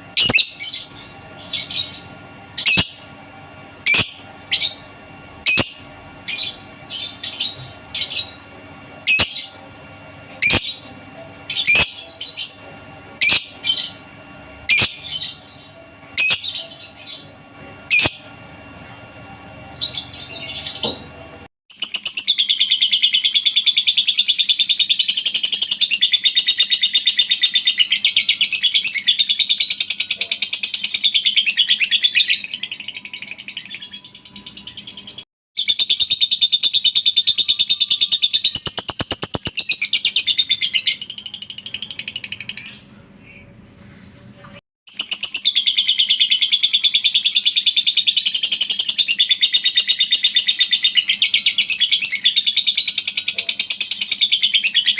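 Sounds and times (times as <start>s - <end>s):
lovebird chirps: 3.9s - 4.6s
lovebird rapid chatter: 38.6s - 40.2s.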